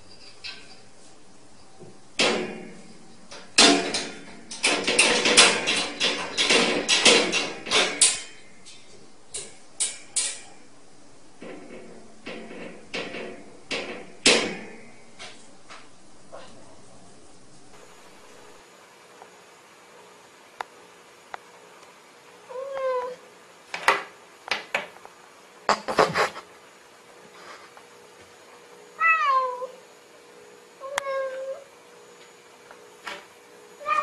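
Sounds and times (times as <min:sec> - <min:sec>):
metal kennel latch rattling: 0:02.2 - 0:10.6.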